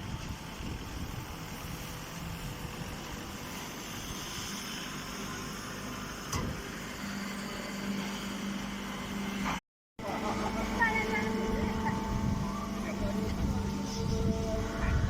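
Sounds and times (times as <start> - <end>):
baling machine running: 0.0 - 15.0
low steady hum: 10.0 - 15.0.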